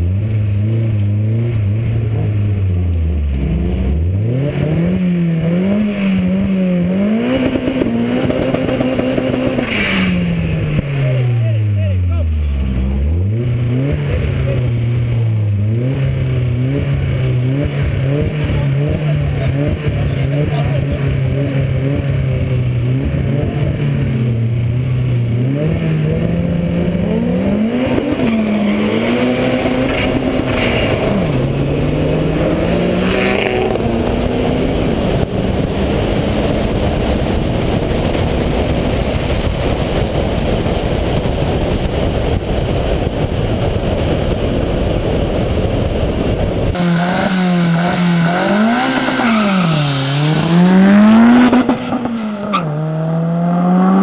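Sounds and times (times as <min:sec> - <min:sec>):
car engine revving through gears: 0:00.0 - 0:11.3, 0:12.4 - 0:40.0, 0:46.3 - 0:54.0
wind rush at speed: 0:26.3 - 0:54.0.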